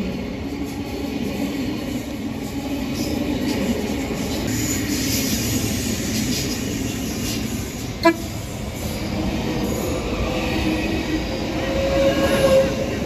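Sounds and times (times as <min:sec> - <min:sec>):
electric train rumbling past: 0:00.0 - 0:13.0
train horn toot: 0:08.0 - 0:08.4.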